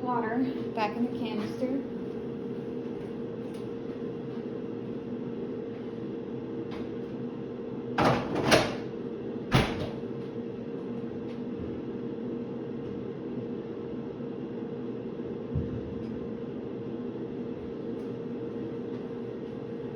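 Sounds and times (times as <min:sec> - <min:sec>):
steady appliance hum: 0:00.0 - 0:19.9.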